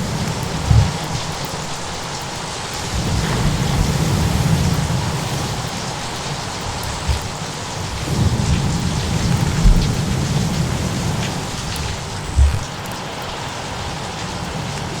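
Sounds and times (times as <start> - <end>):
steady rain: 0.0 - 15.0
low thuds: 0.3 - 1.4, 6.7 - 8.6, 9.2 - 10.6, 11.8 - 12.8
rolling thunder: 6.7 - 12.8.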